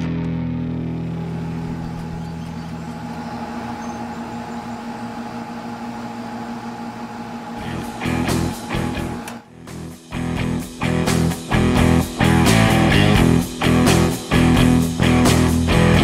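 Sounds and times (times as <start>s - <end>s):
air conditioner humming: 0.8s - 9.6s.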